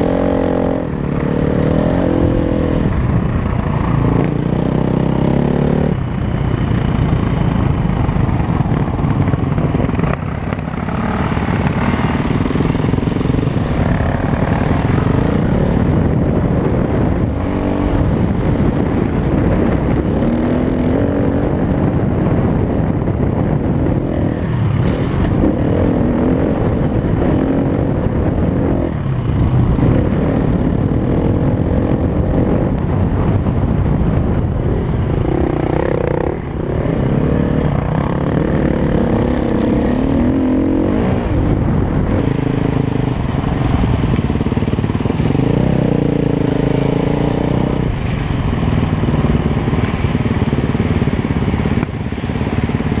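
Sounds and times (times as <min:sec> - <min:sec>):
wind rushing over camera: 0:00.0 - 0:53.0
dirt bike engine revving: 0:35.2 - 0:43.0.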